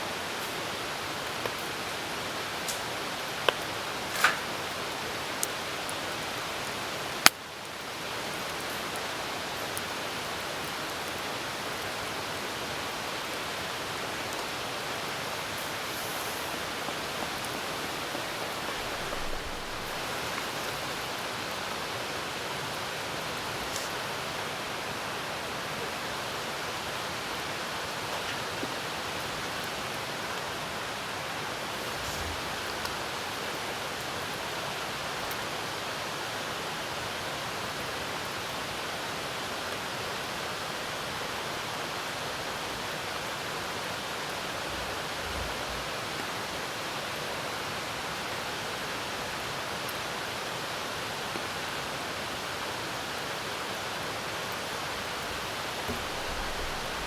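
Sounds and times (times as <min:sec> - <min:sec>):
rain hissing: 0:00.0 - 0:35.8, 0:52.2 - 0:57.0
campfire crackling: 0:00.1 - 0:25.1, 0:26.4 - 0:35.4, 0:52.6 - 0:57.0.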